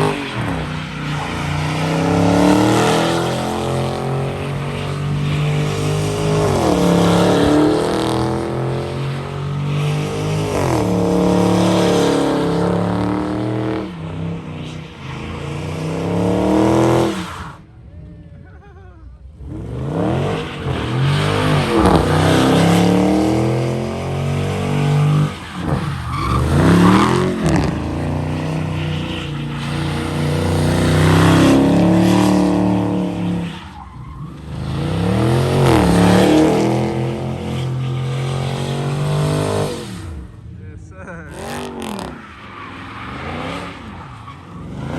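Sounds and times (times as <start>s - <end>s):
car engine at high revs: 0.0s - 17.5s, 19.3s - 44.9s
tyres squealing: 20.0s - 39.8s.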